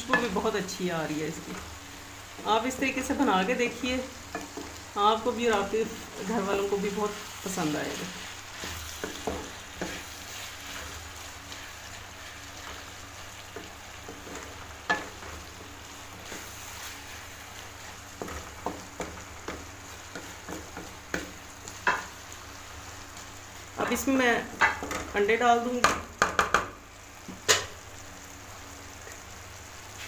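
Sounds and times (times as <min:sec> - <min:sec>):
food sizzling in a metal pan: 0:00.0 - 0:30.0
spatula scraping and knocking pan: 0:05.5 - 0:22.1.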